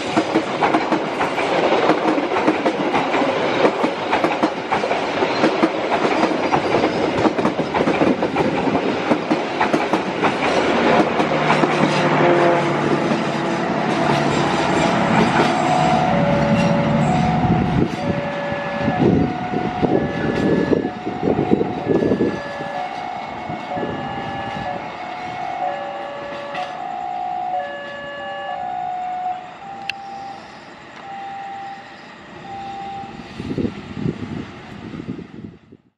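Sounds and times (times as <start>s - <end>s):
train wheels clattering on rails: 0.0s - 26.8s
two-note electronic signal: 15.4s - 24.8s, 25.4s - 33.3s.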